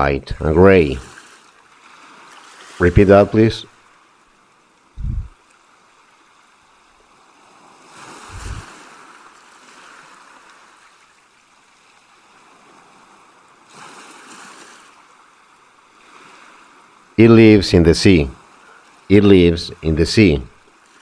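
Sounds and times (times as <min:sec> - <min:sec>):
short low thump: 0:05.0 - 0:05.4
soft steady rushing noise: 0:05.0 - 0:05.4, 0:08.3 - 0:08.7.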